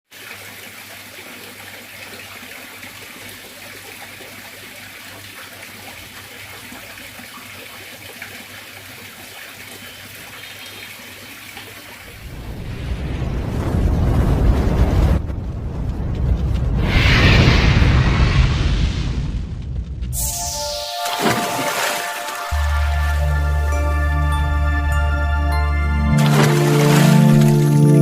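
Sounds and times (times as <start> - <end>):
water trickling from fountain: 0.1 - 12.2.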